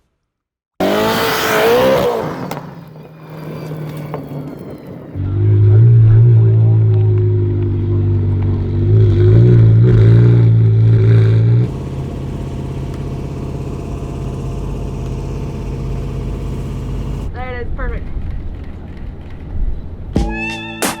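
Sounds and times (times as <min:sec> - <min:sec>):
car engine rumbling: 0:05.2 - 0:17.3
quiet steady engine drone: 0:11.6 - 0:17.3.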